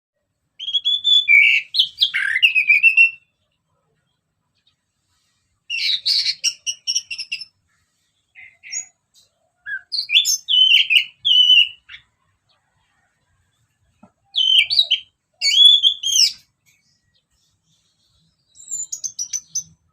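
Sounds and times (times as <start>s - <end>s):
thrush singing whistled phrases: 0.6s - 3.3s, 5.7s - 7.5s, 9.6s - 12.1s, 14.2s - 16.5s, 18.4s - 19.8s.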